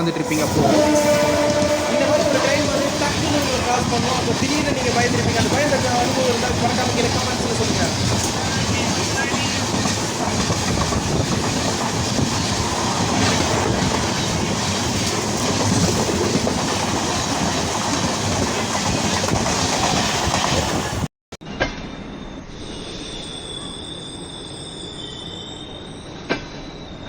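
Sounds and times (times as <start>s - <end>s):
train passing with clickety-clack: 0.0s - 21.1s.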